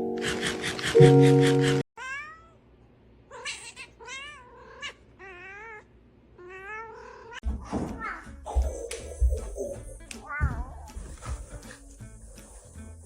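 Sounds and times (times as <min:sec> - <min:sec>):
cat meowing: 0:02.0 - 0:02.6, 0:03.3 - 0:07.4, 0:10.2 - 0:10.9.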